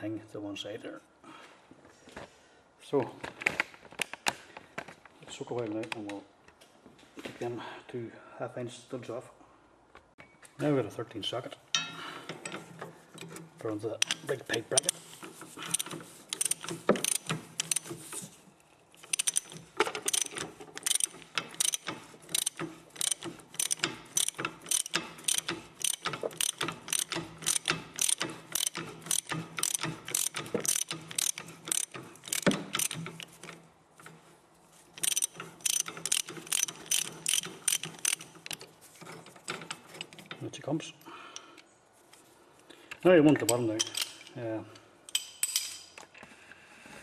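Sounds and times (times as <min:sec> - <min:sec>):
socket ratchet clicking: 0:14.0 - 0:18.1, 0:19.0 - 0:34.2, 0:35.0 - 0:38.7.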